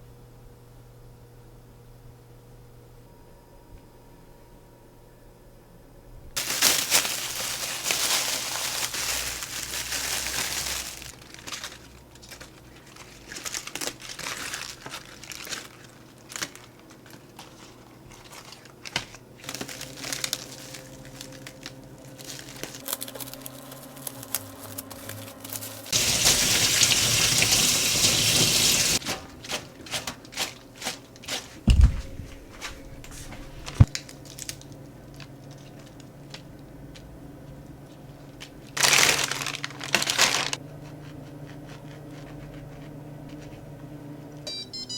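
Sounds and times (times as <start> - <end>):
packaging crinkling: 6.4 - 36.5, 38.4 - 40.6.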